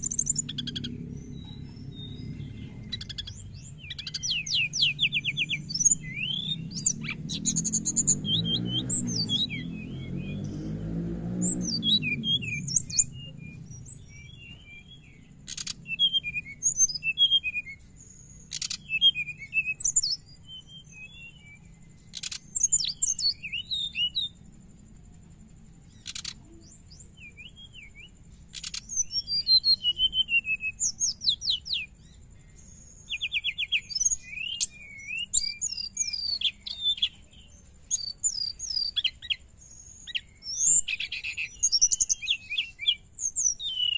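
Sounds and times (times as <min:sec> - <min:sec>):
sharp bird clicks: 0:00.0 - 0:01.9, 0:11.6 - 0:20.2, 0:22.0 - 0:24.1, 0:25.9 - 0:27.0, 0:28.5 - 0:31.8
bird twittering and trilling: 0:00.0 - 0:43.9.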